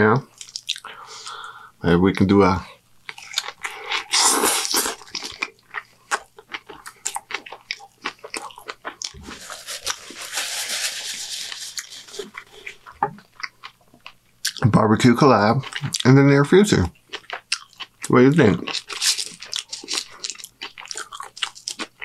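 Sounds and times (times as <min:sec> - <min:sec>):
person chewing with wet clicks: 0:00.3 - 0:00.9, 0:03.0 - 0:09.2, 0:11.8 - 0:16.2, 0:16.9 - 0:22.0
rustling: 0:09.1 - 0:12.8.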